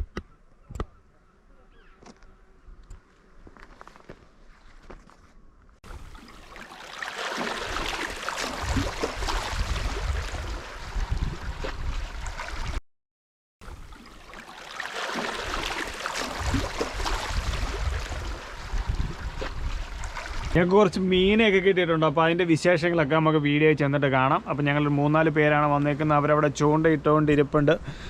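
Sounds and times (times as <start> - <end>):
sea water splashing: 5.8 - 12.8, 13.6 - 20.6
wind rumbling on microphone: 8.6 - 12.8, 16.4 - 20.6.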